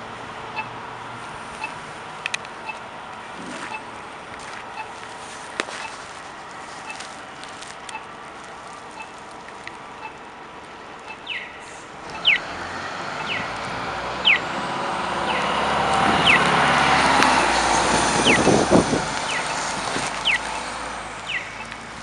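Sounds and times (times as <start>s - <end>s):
large vehicle passing: 11.7s - 22.0s.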